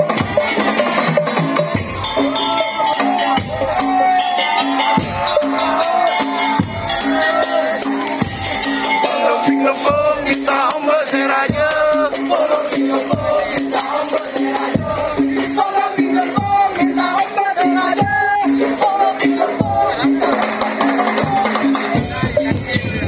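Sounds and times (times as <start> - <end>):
wavering melody line: 0.8 - 22.6
deep drum beat: 4.8 - 9.0, 9.7 - 17.2, 21.0 - 23.0.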